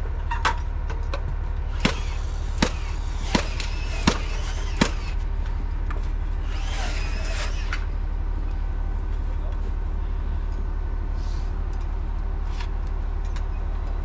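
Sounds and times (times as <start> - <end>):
diesel engine running: 0.0 - 14.0
high wavering squeal: 1.8 - 5.2, 6.4 - 8.0.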